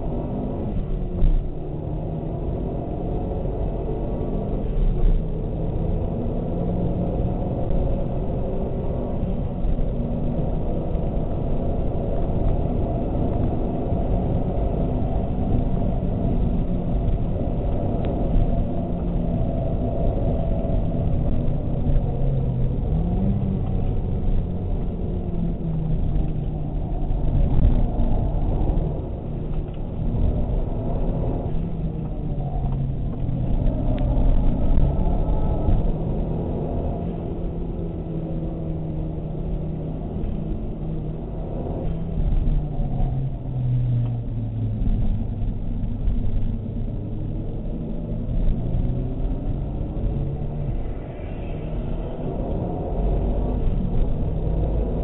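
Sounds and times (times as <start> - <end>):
car engine running hard: 0.0 - 55.0
tyre and wind rumble: 0.0 - 55.0.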